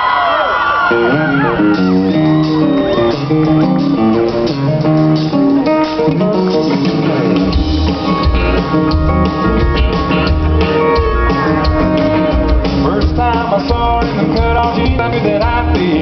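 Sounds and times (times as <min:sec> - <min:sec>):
country band playing: 0:00.0 - 0:16.0
guitar: 0:00.4 - 0:16.0
bass and drums: 0:00.9 - 0:16.0.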